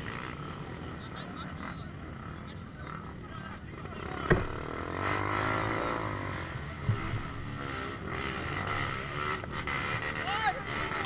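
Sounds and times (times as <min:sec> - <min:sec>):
vehicle engine humming: 0:04.1 - 0:04.9.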